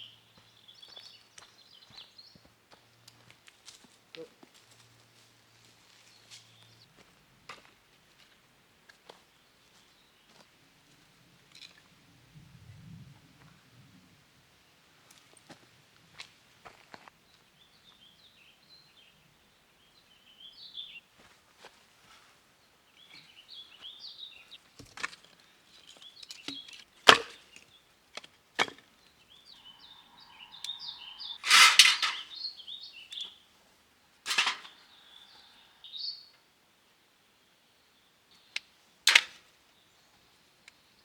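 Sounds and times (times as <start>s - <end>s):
small birds chirping: 0.0s - 3.4s, 17.2s - 21.2s, 22.1s - 28.2s, 28.8s - 33.6s, 34.3s - 36.5s
sharp wooden cracks and knocks: 24.8s - 28.9s, 39.1s - 39.4s.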